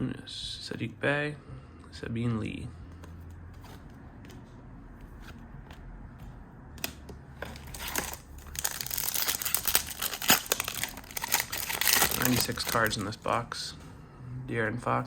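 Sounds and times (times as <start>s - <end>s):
plastic wrapper crinkling: 7.6s - 13.2s.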